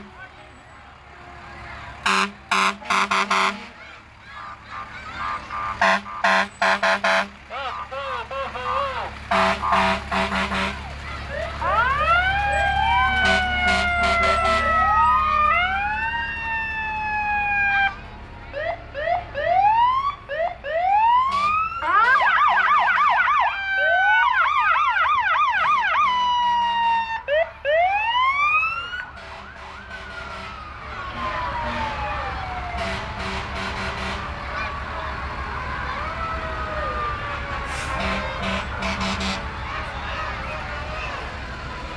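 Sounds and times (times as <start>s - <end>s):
fire truck sirens wailing: 0.0s - 41.9s
short horn blasts: 2.1s - 3.8s, 5.6s - 7.4s, 9.3s - 10.9s, 32.8s - 34.3s, 37.8s - 39.5s.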